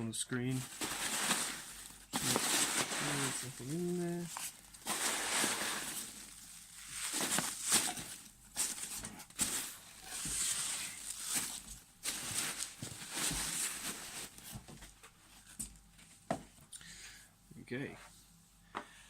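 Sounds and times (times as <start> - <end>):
packing material rustling: 0.5 - 14.7.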